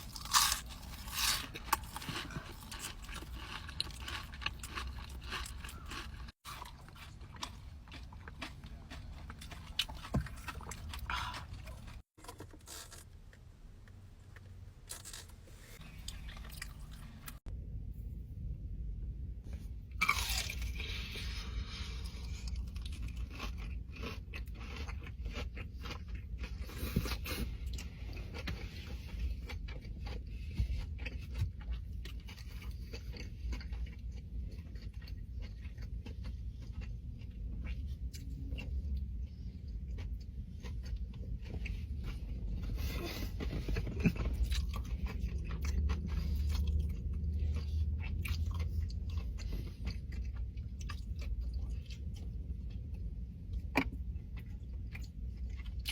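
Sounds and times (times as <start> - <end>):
chewing and crunching food: 0.0 - 17.5, 19.5 - 55.9.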